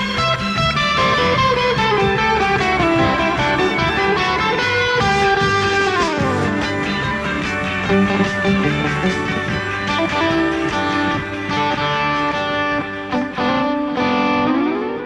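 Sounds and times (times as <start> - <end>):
bass and drums backing track: 0.0 - 14.7
electric guitar surf melody: 0.0 - 15.0.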